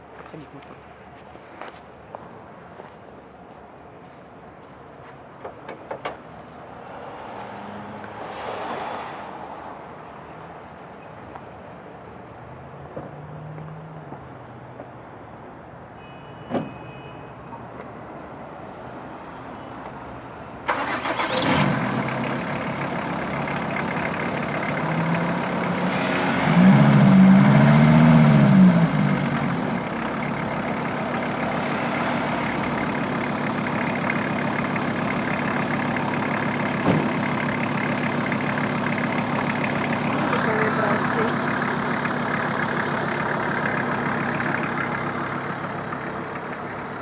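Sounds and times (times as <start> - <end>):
diesel engine starting and idling: 20.6 - 47.0.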